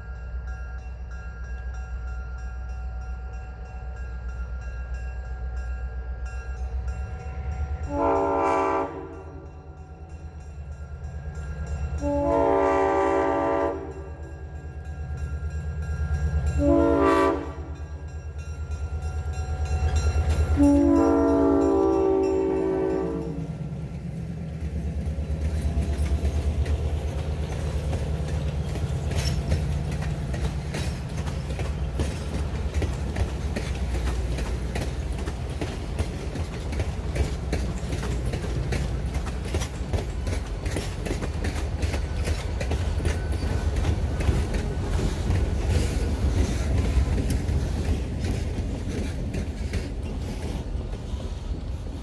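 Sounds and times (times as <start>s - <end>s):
train wheels rumbling on rail: 0.0s - 52.0s
wheels clicking over rail joints: 17.9s - 52.0s.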